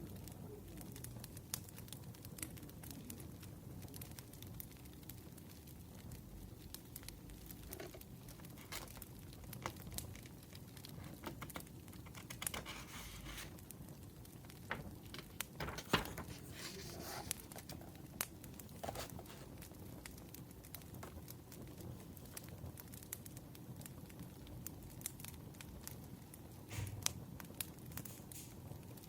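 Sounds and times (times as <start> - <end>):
wood fire crackling: 0.0 - 29.0
paper rustling: 7.5 - 13.7, 14.5 - 19.7.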